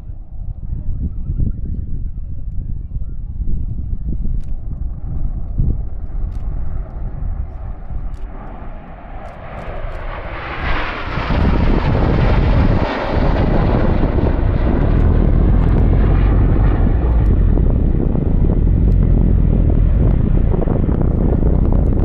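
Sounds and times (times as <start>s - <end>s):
jets flying past: 4.9s - 22.0s.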